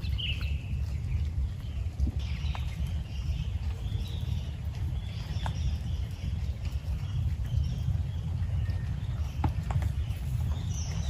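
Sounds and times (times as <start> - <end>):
sharp drip knocks: 8.4 - 11.0.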